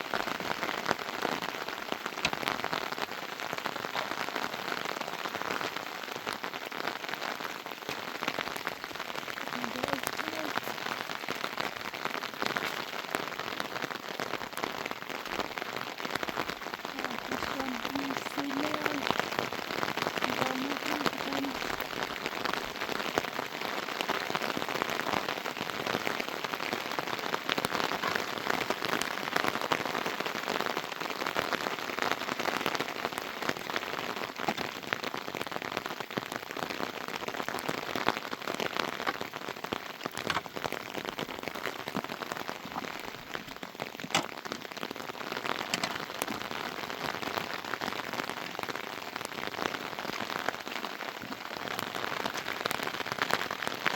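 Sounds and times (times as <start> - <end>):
rain drops pattering on a surface: 0.0 - 53.9.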